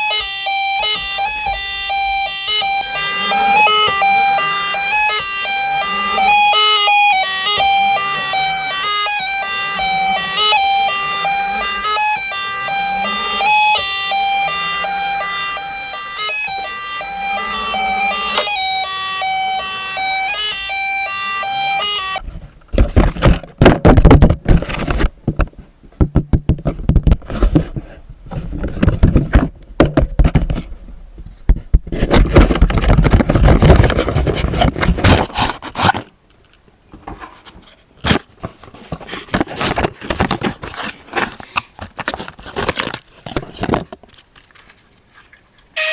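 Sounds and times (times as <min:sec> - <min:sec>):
toy beeping tune: 0:00.0 - 0:22.2
plastic packaging crinkling: 0:38.1 - 0:45.7.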